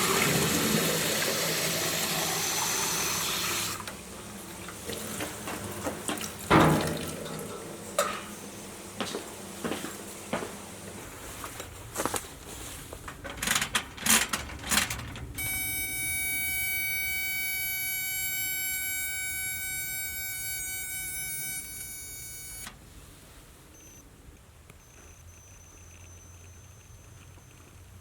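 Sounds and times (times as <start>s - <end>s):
steady electronic tone: 15.4s - 22.7s.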